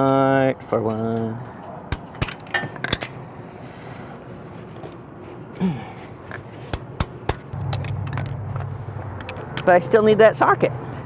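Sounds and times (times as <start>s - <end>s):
steady low hum: 1.8s - 10.2s.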